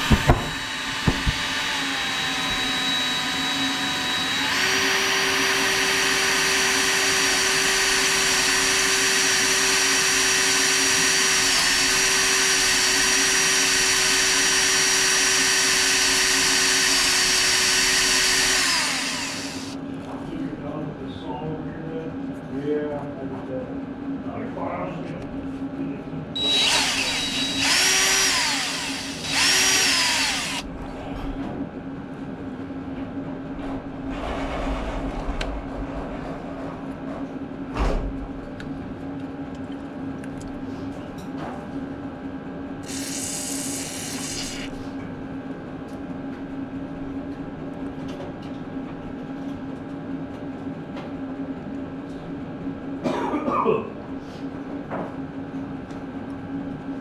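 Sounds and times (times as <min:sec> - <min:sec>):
power drill running: 0:00.0 - 0:19.8, 0:26.4 - 0:30.7, 0:42.8 - 0:44.8.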